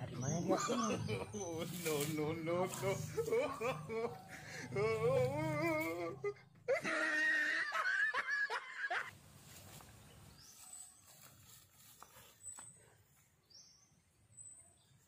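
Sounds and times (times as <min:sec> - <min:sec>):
voice: 0:00.0 - 0:06.4
outdoor background noise: 0:00.0 - 0:15.0.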